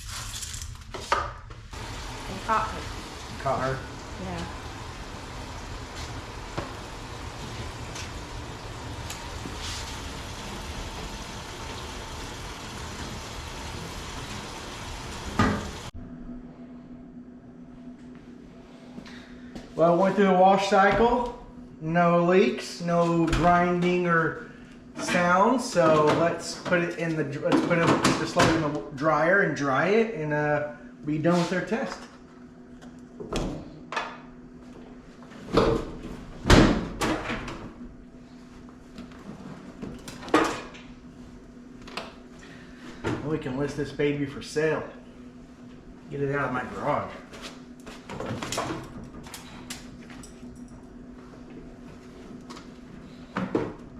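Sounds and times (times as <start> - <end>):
washing machine running: 1.7 - 16.0
low steady hum: 1.7 - 23.8.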